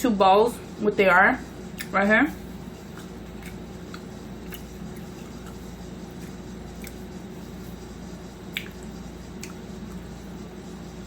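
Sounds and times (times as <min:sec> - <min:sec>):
low room hum: 0:00.0 - 0:11.0
mouth chewing clicks and smacks: 0:01.8 - 0:02.0, 0:02.8 - 0:07.1, 0:08.4 - 0:10.1.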